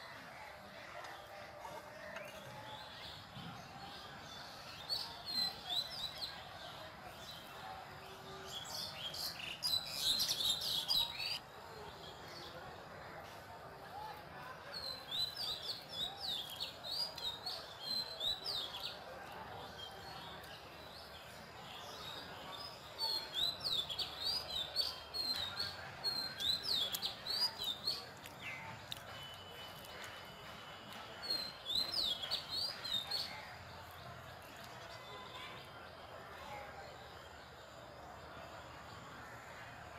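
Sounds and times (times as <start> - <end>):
small bird singing high chirps: 8.5 - 11.4, 21.2 - 29.2.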